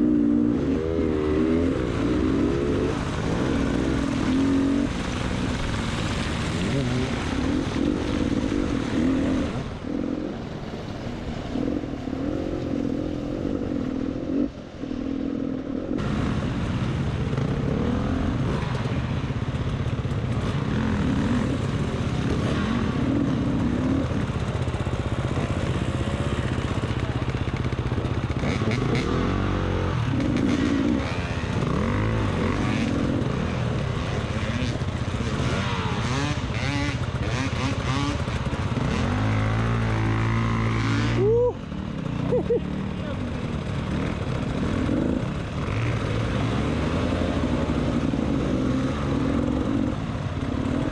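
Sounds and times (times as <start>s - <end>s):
dirt bike engine revving: 0.0s - 10.2s, 28.4s - 50.9s.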